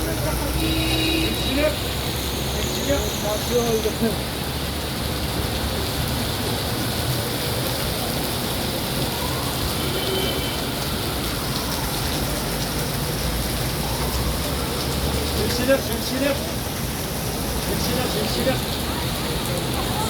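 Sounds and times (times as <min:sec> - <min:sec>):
heavy rain on street: 0:00.0 - 0:20.0.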